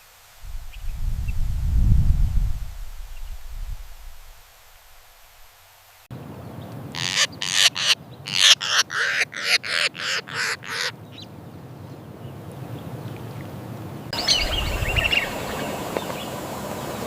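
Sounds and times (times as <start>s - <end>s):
outdoor background hiss: 0.0s - 17.0s
bird rasping calls: 7.0s - 11.0s.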